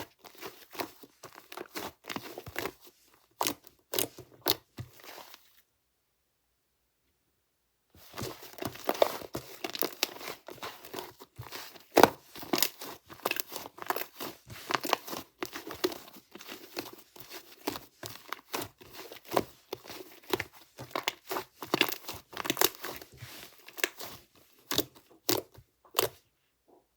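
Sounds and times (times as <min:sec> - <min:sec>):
slime squished by hand: 0:08.0 - 0:26.2.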